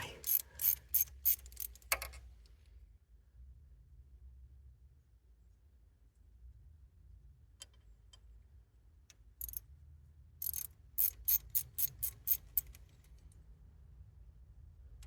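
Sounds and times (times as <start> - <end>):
ratchet spanner clicking: 0.0 - 2.2, 10.4 - 12.8.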